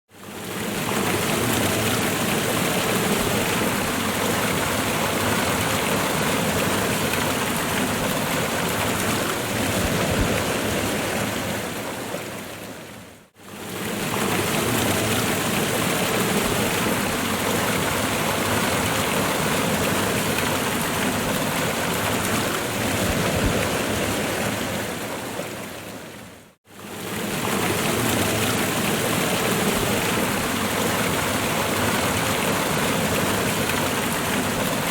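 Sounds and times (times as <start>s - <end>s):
waterfall rushing: 26.9s - 34.9s.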